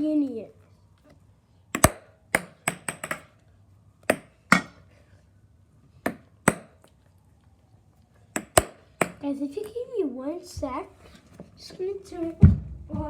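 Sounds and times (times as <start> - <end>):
small ball bouncing: 1.7 - 3.4, 4.0 - 4.7, 6.1 - 7.0, 8.4 - 9.8.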